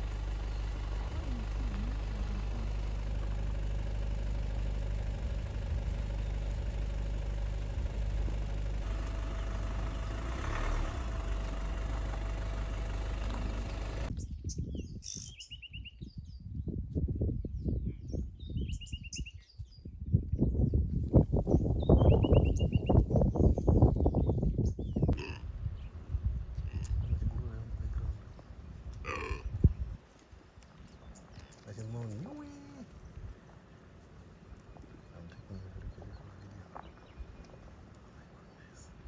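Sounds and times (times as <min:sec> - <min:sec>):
vehicle engine idling: 0:00.0 - 0:14.1.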